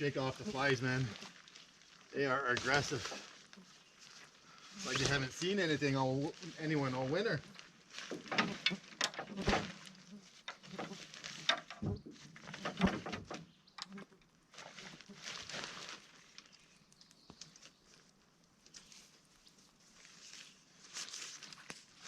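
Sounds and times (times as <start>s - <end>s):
fabric rustling: 0.0s - 13.0s, 18.7s - 22.0s.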